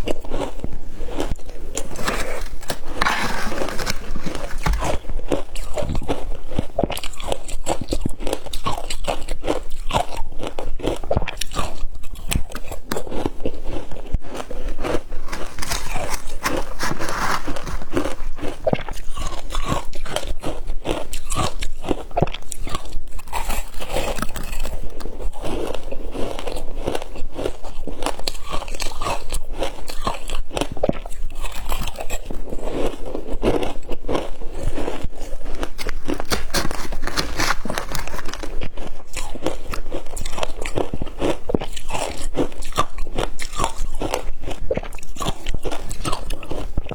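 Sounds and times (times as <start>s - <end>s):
shaved ice crunching: 1.4s - 6.2s, 15.0s - 20.0s, 35.7s - 38.6s.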